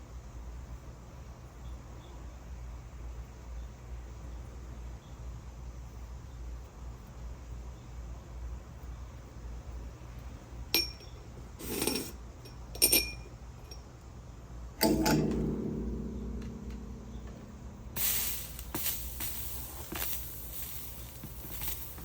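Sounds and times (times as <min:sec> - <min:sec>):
tools and glass clinking: 0:10.8 - 0:13.9, 0:14.8 - 0:15.4
ringing knock: 0:14.8 - 0:18.0
brief hiss: 0:18.0 - 0:22.0.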